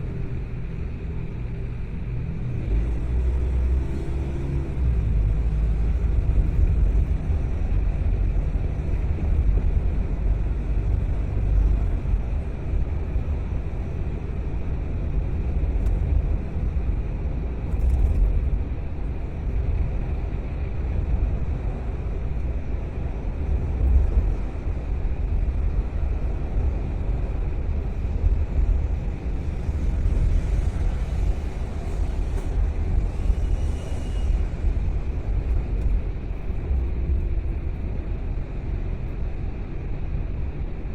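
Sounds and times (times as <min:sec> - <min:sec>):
car driving road and engine noise: 0:00.0 - 0:40.9.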